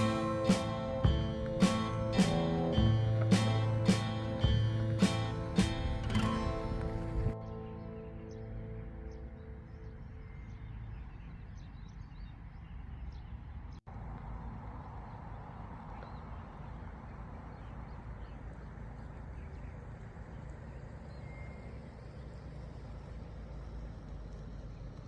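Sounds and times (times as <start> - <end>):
outdoor rushing noise: 0.0 - 7.8
bird chirps: 0.0 - 13.8, 14.4 - 25.0.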